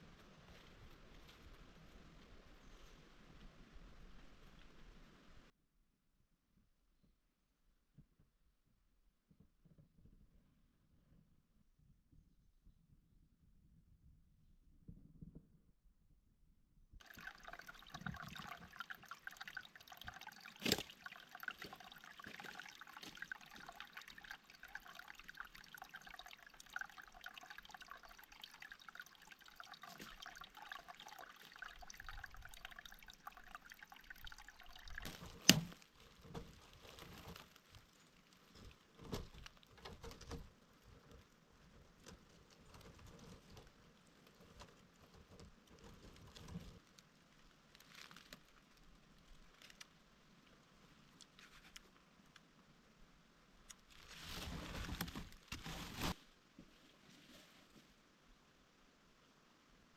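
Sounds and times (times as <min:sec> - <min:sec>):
water trickling: 0:17.0 - 0:48.6.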